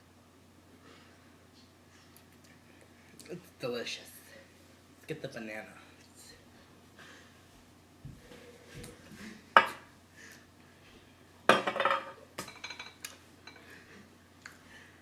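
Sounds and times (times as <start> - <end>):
dishes and cutlery clattering: 11.5 - 13.7.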